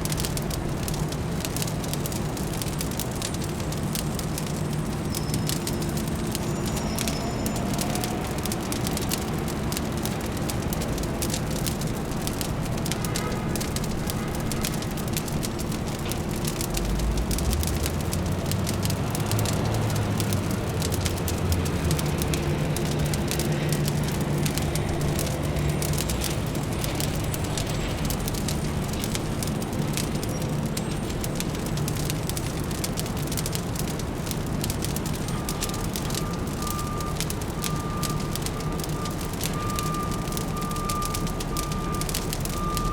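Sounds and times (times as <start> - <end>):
fire crackling: 0.0 - 42.9
low city hum: 0.0 - 42.9
deep rumble: 10.6 - 33.4.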